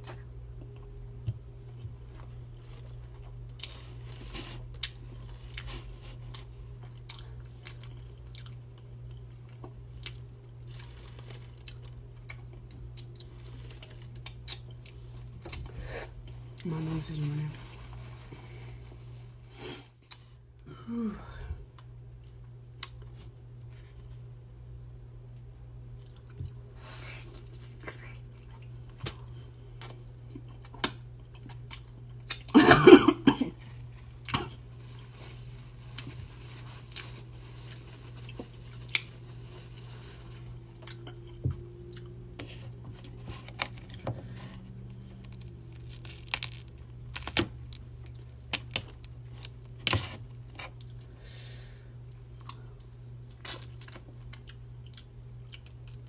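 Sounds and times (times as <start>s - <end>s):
wet chewing with crunches: 2.1s - 16.7s, 35.6s - 51.0s, 52.1s - 56.0s.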